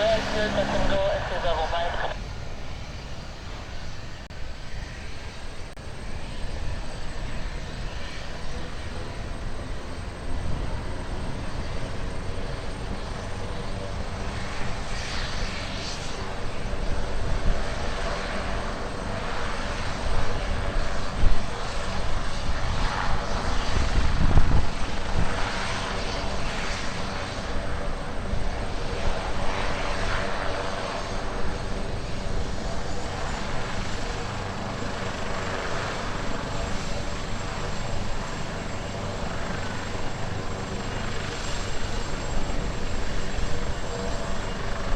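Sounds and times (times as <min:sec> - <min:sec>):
aircraft engine running: 0:00.0 - 0:44.9
wind rumble on microphone: 0:19.9 - 0:30.0.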